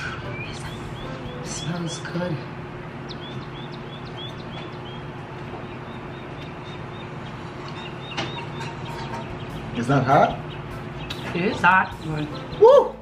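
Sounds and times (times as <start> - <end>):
small bird high chirps: 0.0 - 2.1, 3.0 - 13.0
low steady hum: 0.0 - 13.0.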